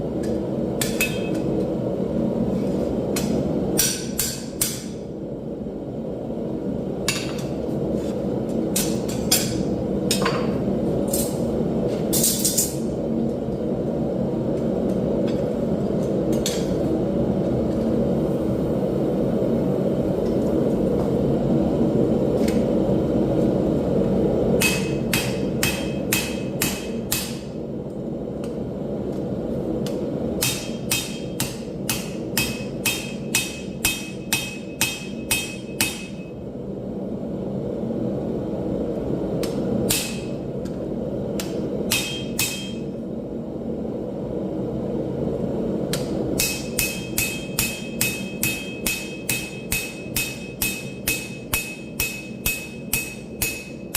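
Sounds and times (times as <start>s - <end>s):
hammer striking steel on anvil: 0.2s - 1.5s, 3.2s - 5.0s, 24.6s - 27.6s, 29.8s - 36.3s, 39.4s - 40.4s, 41.4s - 43.0s, 45.9s - 53.9s.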